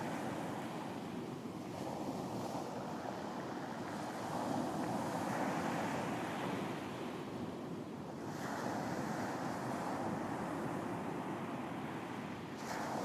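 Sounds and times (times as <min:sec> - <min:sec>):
ocean waves breaking on beach: 0:00.0 - 0:13.0.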